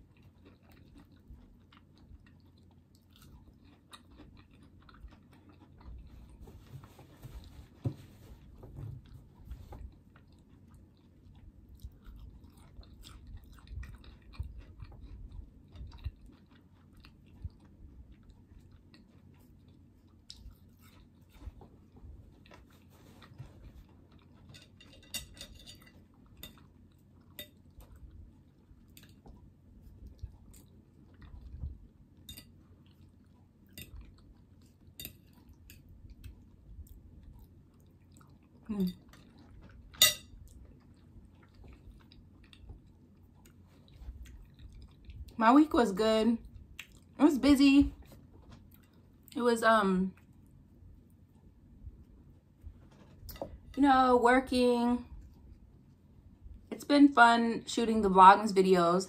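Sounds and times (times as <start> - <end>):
crunching fried food: 0.0 - 6.3.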